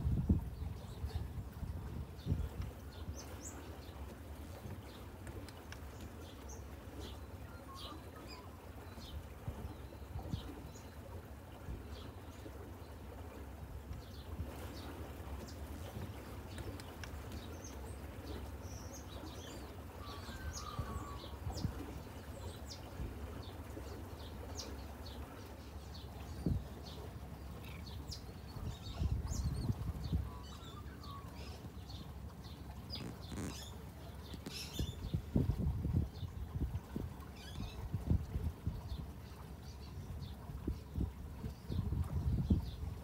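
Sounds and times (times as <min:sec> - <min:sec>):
small birds chirping: 0:14.0 - 0:35.3.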